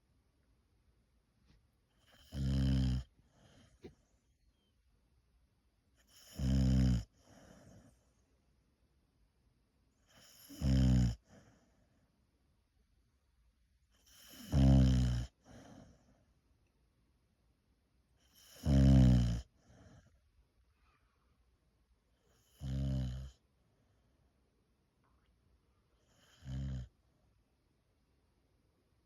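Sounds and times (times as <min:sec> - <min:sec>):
dog snoring: 0:02.0 - 0:04.0, 0:06.0 - 0:08.0, 0:10.0 - 0:11.8, 0:14.0 - 0:16.2, 0:18.2 - 0:20.2, 0:22.3 - 0:23.4, 0:26.0 - 0:26.9.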